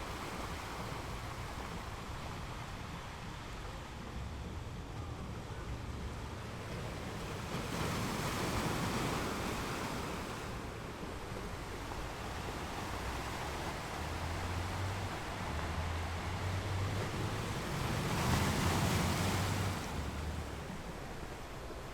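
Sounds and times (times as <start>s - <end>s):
sea waves breaking on rocks: 6.9s - 21.9s.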